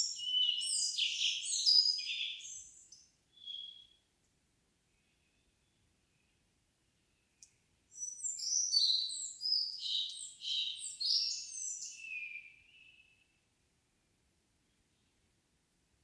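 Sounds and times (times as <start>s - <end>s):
songbird singing: 0.0s - 4.1s, 5.0s - 13.4s.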